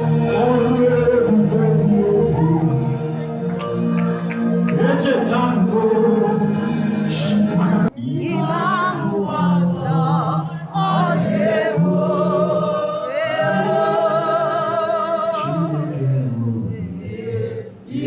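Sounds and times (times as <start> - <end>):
low musical accompaniment: 0.0 - 8.2
voices singing gospel: 0.0 - 18.0.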